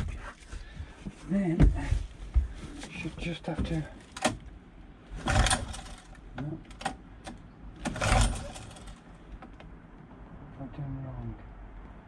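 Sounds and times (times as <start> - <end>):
outboard motor pull-cord starter: 5.2 - 6.2, 7.8 - 9.0.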